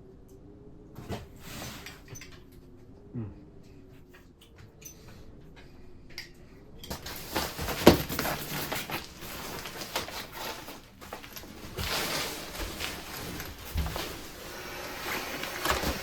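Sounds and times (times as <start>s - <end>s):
rustling and handling noise: 4.0s - 16.0s.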